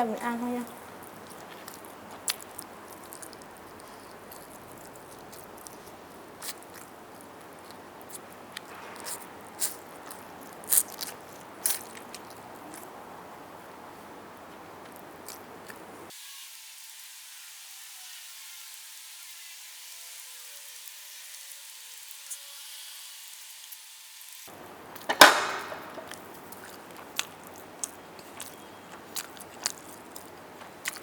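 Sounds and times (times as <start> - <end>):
chewing and biting food: 0.8 - 13.0, 14.6 - 16.1, 24.5 - 31.0.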